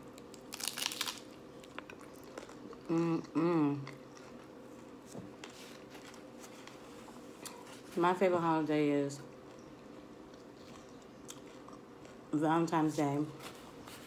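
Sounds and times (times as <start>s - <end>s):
crunching bite into taco: 0.1s - 3.0s
person chewing: 0.2s - 5.0s, 9.4s - 12.3s
person humming: 2.9s - 3.9s.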